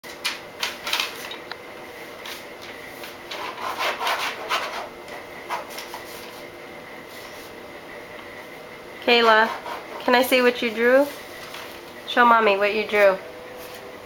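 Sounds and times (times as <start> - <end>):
scribbling on paper: 3.3 - 6.1, 9.2 - 10.3.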